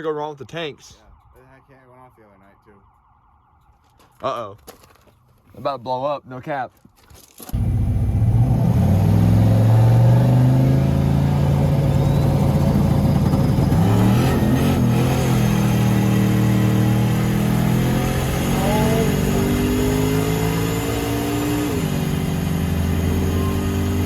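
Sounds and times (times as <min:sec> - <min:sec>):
truck engine under load: 0:07.5 - 0:17.6.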